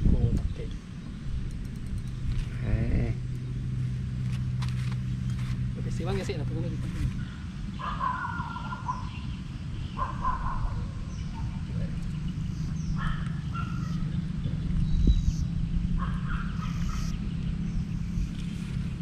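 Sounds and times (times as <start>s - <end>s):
low steady hum: 0.0s - 7.8s
bird calling: 6.8s - 18.8s.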